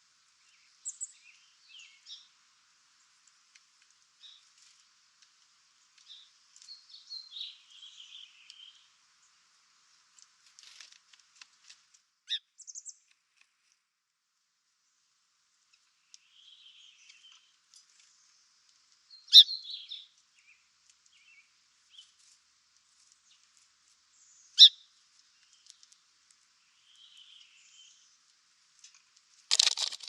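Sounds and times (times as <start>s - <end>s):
faint bird twittering: 16.0s - 18.3s, 19.1s - 22.2s, 24.1s - 25.8s, 26.6s - 28.2s.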